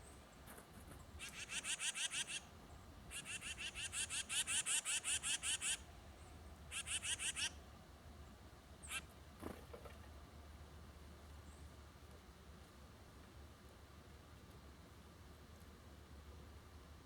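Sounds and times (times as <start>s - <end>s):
bird chattering calls: 1.2s - 2.5s, 3.1s - 5.8s, 6.7s - 7.6s.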